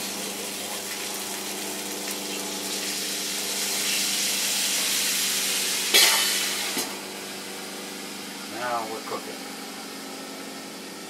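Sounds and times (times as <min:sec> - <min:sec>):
water hissing on hot griddle: 0:00.0 - 0:08.5.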